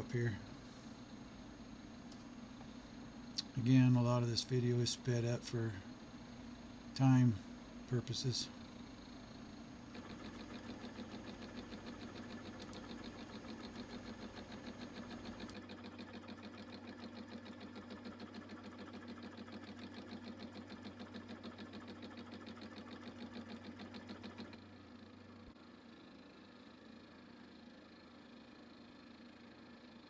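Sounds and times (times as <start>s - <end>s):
machine hum: 0.0s - 16.8s
milling cutter pulsing on metal: 8.1s - 17.2s.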